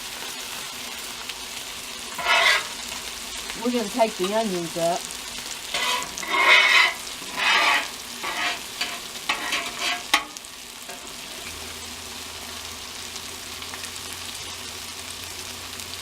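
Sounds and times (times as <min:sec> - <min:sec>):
food sizzling on griddle: 0:00.0 - 0:16.0
metal spatula scraping griddle: 0:02.1 - 0:02.9, 0:05.6 - 0:11.5.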